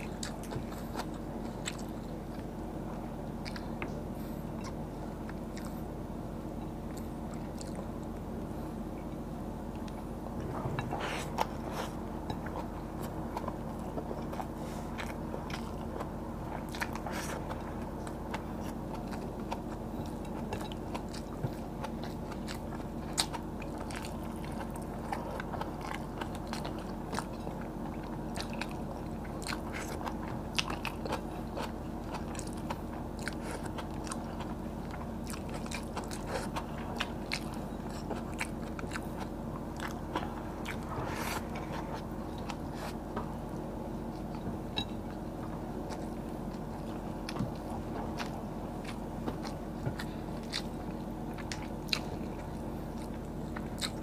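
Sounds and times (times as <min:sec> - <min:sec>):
chewing and crunching food: 0:00.0 - 0:54.0
steady low hum: 0:00.0 - 0:54.0.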